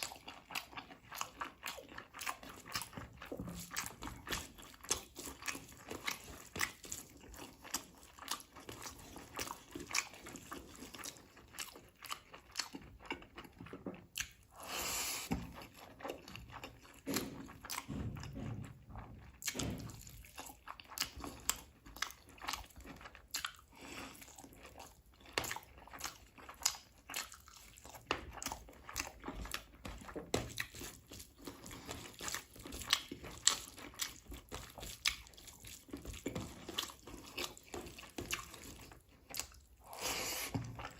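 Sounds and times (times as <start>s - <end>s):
wet chewing and mouth smacks: 0.0s - 40.9s.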